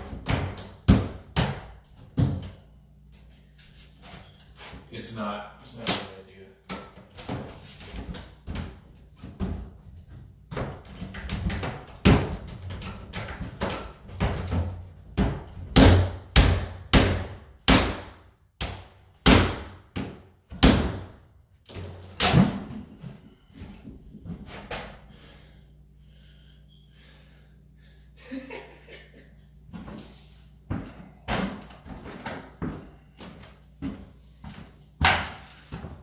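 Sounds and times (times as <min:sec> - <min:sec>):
hard blows battering a cabinet: 0:00.0 - 0:02.6, 0:10.5 - 0:21.2, 0:22.1 - 0:23.0, 0:30.7 - 0:32.9, 0:35.0 - 0:36.0.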